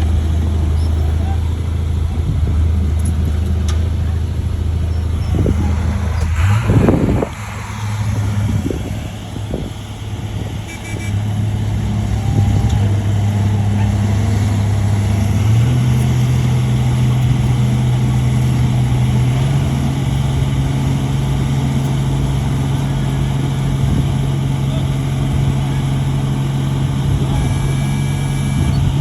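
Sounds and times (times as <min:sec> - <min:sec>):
heavy machine diesel engine: 0:00.0 - 0:29.0.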